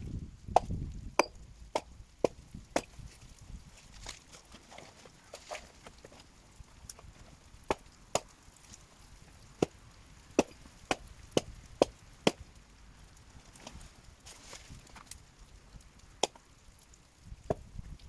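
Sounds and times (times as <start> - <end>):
axe chopping wood: 0.5 - 3.1, 7.6 - 8.3, 9.6 - 9.8, 10.4 - 12.4, 16.2 - 16.4, 17.5 - 17.7.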